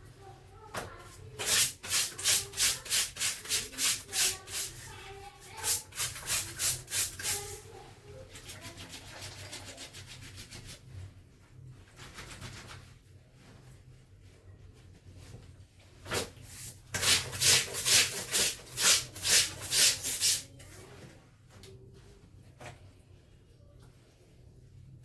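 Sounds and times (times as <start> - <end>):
wet clothes scrubbed by hand: 16.3 - 20.5.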